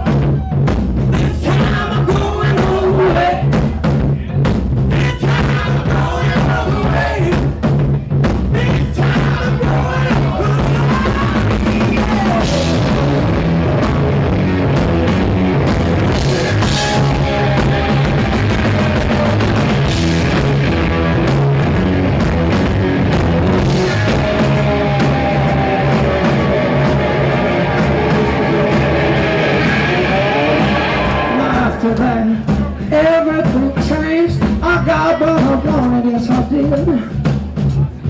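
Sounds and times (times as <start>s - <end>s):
rock band playing live: 0.0s - 38.0s
electric guitar lead bends: 10.6s - 32.8s.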